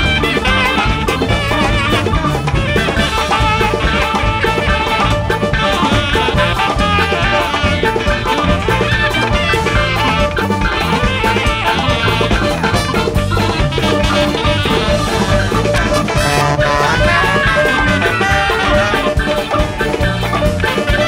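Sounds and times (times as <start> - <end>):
jazz band playing: 0.0 - 21.0.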